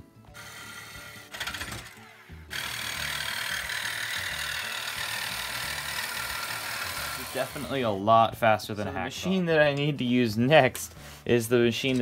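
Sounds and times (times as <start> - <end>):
reciprocating saw cutting metal: 0.4 - 7.8.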